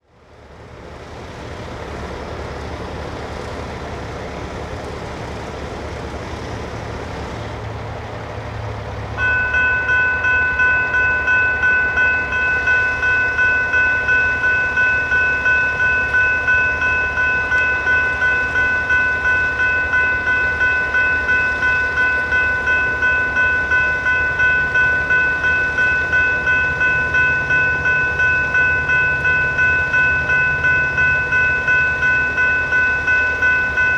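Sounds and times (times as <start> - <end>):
railroad crossing bell ringing: 8.8 - 33.9.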